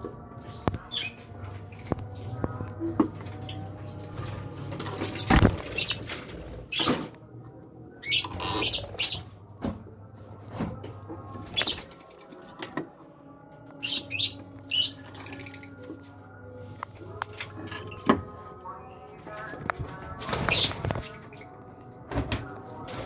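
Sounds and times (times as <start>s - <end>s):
birds chattering squeaks: 0.6s - 2.1s, 5.0s - 7.0s, 8.0s - 9.3s, 11.5s - 12.6s, 13.8s - 15.8s, 20.2s - 22.1s.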